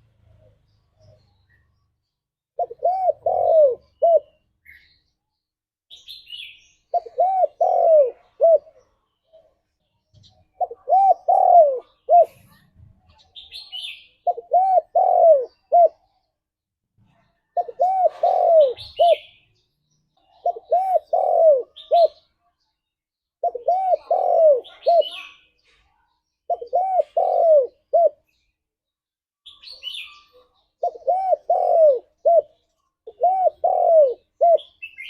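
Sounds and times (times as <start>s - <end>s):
small birds chirping: 0.0s - 35.0s
dove cooing: 2.6s - 4.4s, 6.9s - 9.0s, 10.5s - 12.6s, 14.2s - 16.2s, 17.5s - 19.4s, 20.3s - 22.2s, 23.4s - 25.4s, 26.5s - 28.3s, 30.8s - 35.0s.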